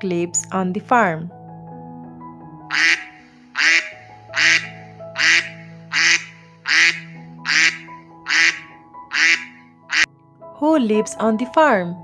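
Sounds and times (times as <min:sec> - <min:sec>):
soft background music: 0:00.0 - 0:12.0
duck quacking: 0:02.7 - 0:10.1.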